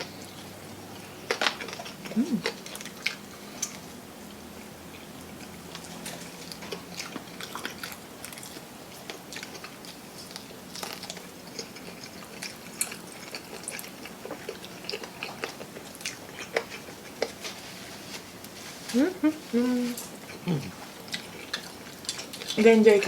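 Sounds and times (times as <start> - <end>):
chewing crispy food: 0.0 - 23.0.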